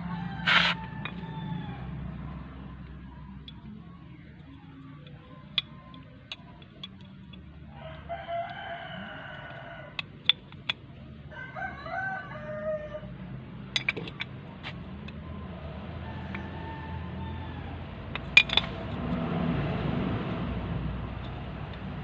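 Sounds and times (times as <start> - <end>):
rooster crowing: 0.0 - 2.4, 7.7 - 10.0, 11.3 - 13.2, 15.6 - 18.0.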